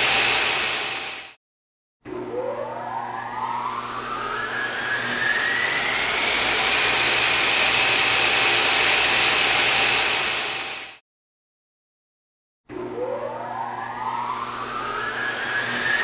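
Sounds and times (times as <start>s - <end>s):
motor whine rising: 0.0s - 1.4s, 2.1s - 11.0s, 12.7s - 16.0s.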